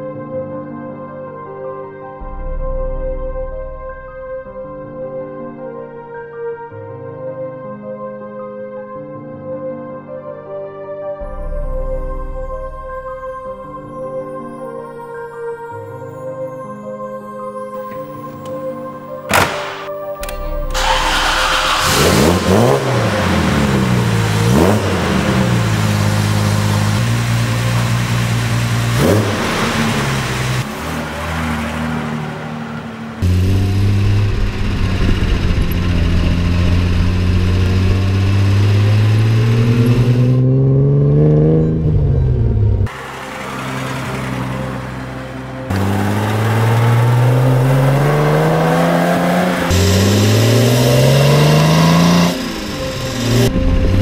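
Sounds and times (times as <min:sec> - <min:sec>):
car engine starting and revving: 0:19.3 - 0:54.0.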